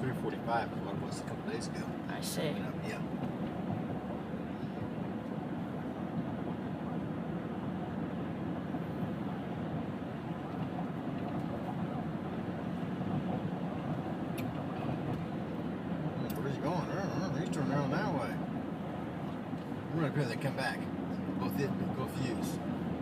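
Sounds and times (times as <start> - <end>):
car road and engine rumble: 0.0 - 23.0.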